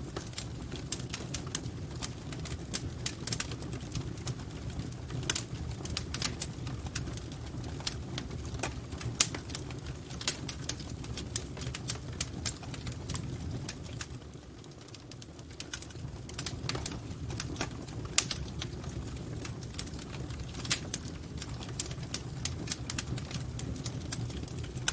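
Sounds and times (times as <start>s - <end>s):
low rumble of flames: 0.0s - 24.9s
wood fire crackling: 0.0s - 24.9s.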